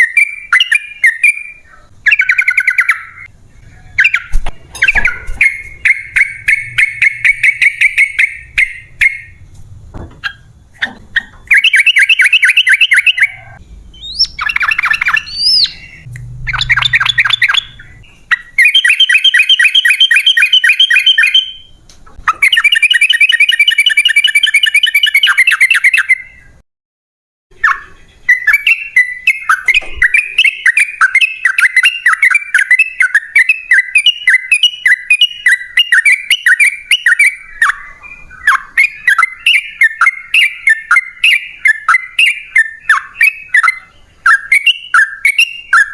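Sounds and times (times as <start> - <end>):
bird singing fast chattering runs: 13.8 - 21.5.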